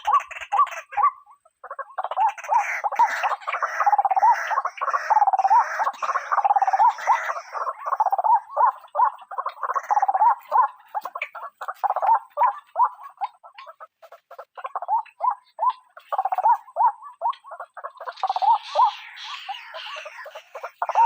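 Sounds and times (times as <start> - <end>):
waterhen calling harsh croaks: 0.0 - 21.0.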